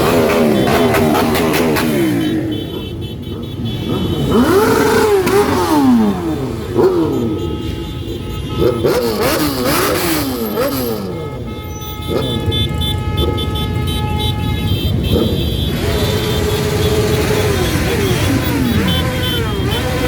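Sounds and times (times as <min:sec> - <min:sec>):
motorcycles revving past: 0:00.0 - 0:07.6, 0:08.6 - 0:11.4, 0:15.0 - 0:20.0
multi-pitch horn: 0:00.0 - 0:20.0.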